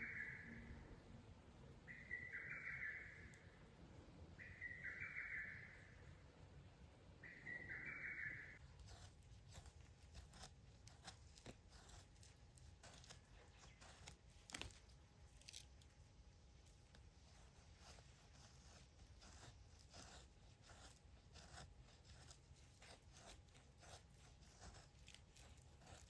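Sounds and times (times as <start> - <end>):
bird call: 0.0 - 0.6, 1.9 - 3.5, 4.4 - 6.0, 7.2 - 8.6
faint clicks and rustles: 8.6 - 26.0.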